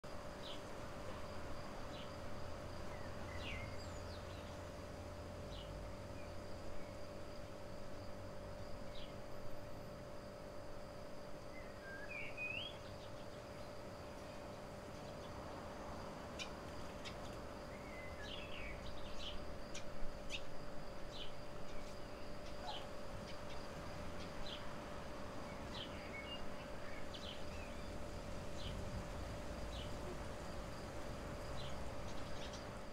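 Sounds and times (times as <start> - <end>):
steady hum: 0.0 - 32.9
small birds chirping: 2.9 - 4.8, 11.5 - 15.4, 16.2 - 24.8, 25.4 - 28.9, 31.4 - 32.9.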